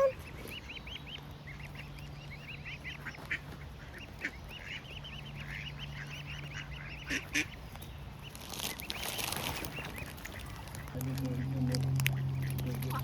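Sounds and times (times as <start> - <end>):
waterfowl chicks peeping: 0.0 - 13.0.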